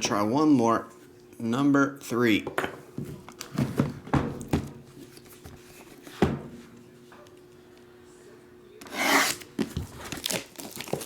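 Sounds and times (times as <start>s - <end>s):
wrapper crinkling: 10.0s - 11.0s.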